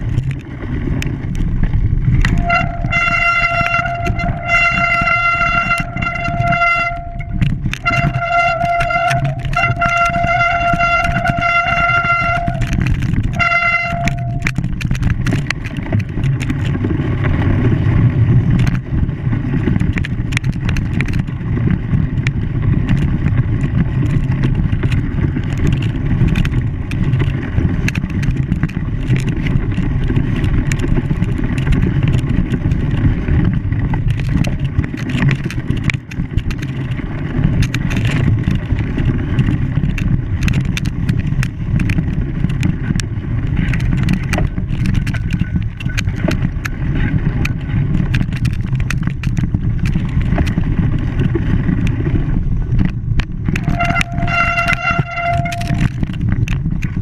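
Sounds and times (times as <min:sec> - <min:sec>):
clicks and rattles: 0:00.0 - 0:57.0
vehicle running: 0:00.0 - 0:57.0
horn blasts: 0:02.2 - 0:14.6, 0:53.6 - 0:55.9.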